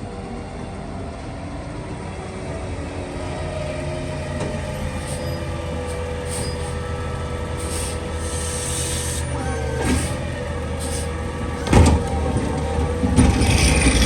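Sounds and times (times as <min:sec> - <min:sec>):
diesel engine running: 0:01.6 - 0:14.0
short hisses: 0:04.7 - 0:11.2.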